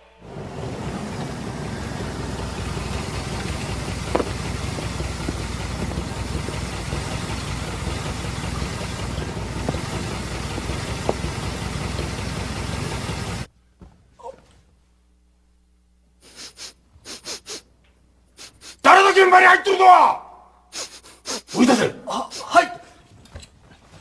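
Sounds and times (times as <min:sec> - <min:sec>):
car engine idling: 0:00.0 - 0:13.5.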